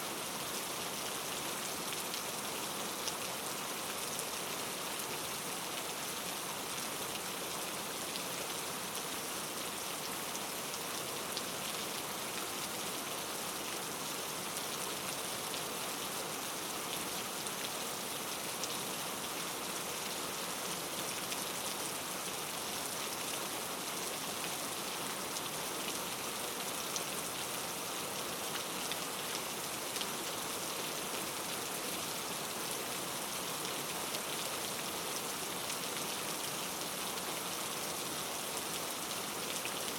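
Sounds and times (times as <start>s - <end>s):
steady rain on a surface: 0.0s - 39.9s.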